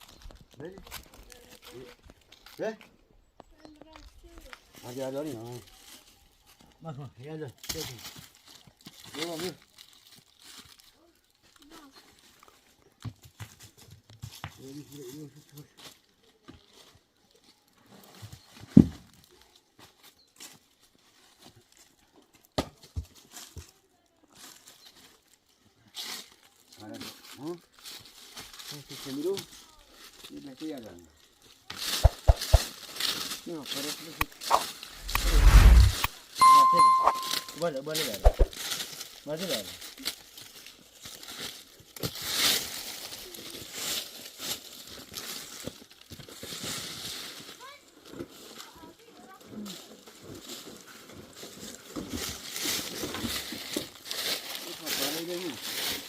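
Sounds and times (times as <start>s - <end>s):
earth or stone scraping and crunching: 34.3s - 36.1s
short hissing scrapes: 34.5s - 36.1s.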